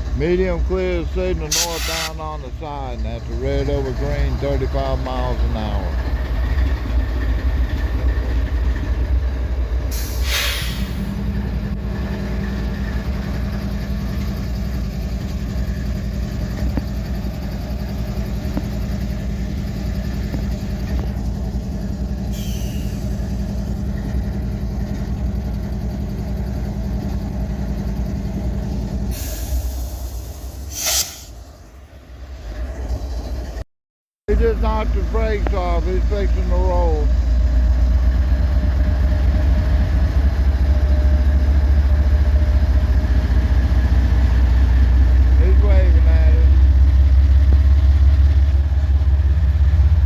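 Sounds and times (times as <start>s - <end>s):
diesel locomotive idling hum: 0.0s - 33.6s, 34.3s - 50.0s
air brake hisses: 1.5s - 2.2s, 9.9s - 11.2s, 22.3s - 23.1s, 29.1s - 31.4s.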